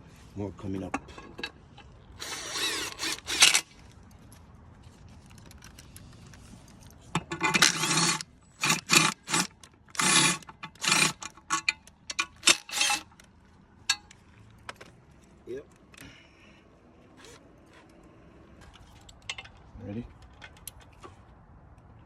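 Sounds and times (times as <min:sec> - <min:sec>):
metal tools clinking and rattling: 0:05.2 - 0:13.2.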